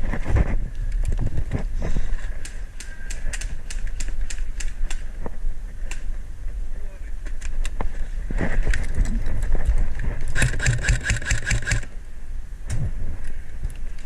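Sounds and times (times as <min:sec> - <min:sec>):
wind on microphone: 0:00.0 - 0:14.0
airsoft gun firing bursts: 0:10.4 - 0:11.9.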